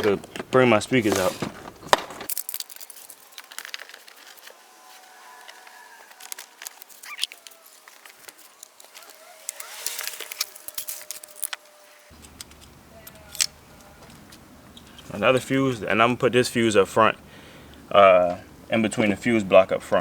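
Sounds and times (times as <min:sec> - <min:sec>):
items clicking and rattling: 0:00.0 - 0:04.6, 0:05.4 - 0:14.4.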